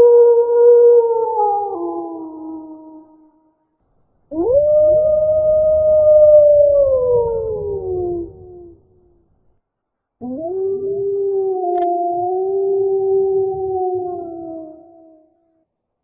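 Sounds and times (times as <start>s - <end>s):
wolf howling: 4.3s - 9.0s, 10.2s - 15.2s.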